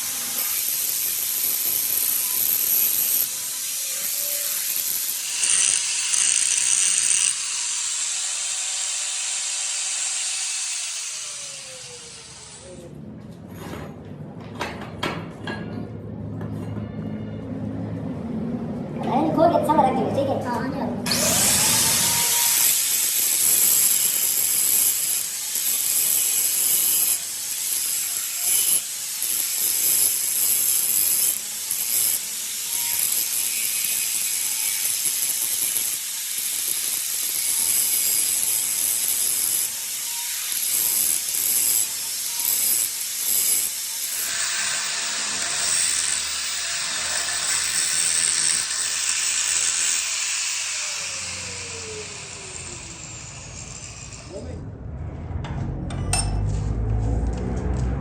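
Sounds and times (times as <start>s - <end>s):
high rasping metal working: 0.0s - 12.8s, 21.1s - 54.5s.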